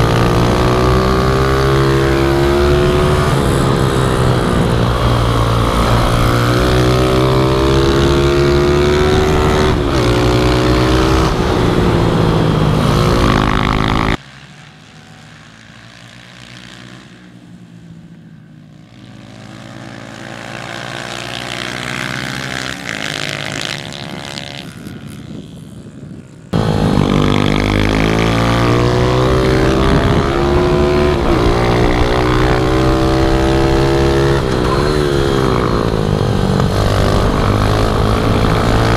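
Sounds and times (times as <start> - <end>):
pit bike engine revving: 0.0 - 14.2, 26.6 - 38.9
distant engine: 0.0 - 38.9.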